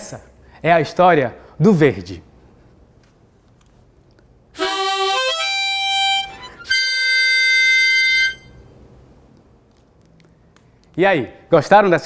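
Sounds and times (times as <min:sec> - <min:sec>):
harmonica flourish: 0:04.6 - 0:08.7.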